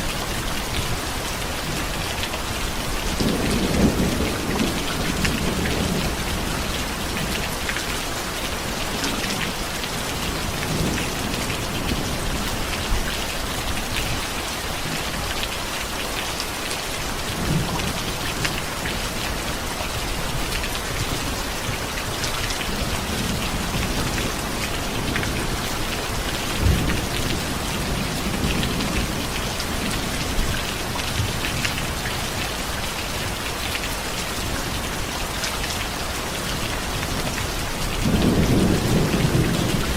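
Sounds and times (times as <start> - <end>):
steady rain falling: 0.0 - 39.9
thunder rumbles: 3.0 - 7.4, 22.7 - 32.0, 37.2 - 39.9.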